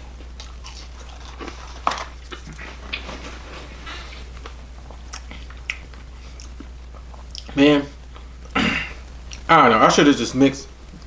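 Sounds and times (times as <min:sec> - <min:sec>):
chewing and mouth noises: 0:00.0 - 0:08.6
low electrical hum: 0:00.0 - 0:11.0.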